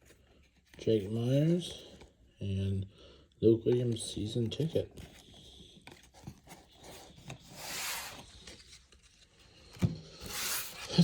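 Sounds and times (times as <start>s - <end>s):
trading cards rubbing and sliding: 6.3s - 9.2s, 10.2s - 11.0s.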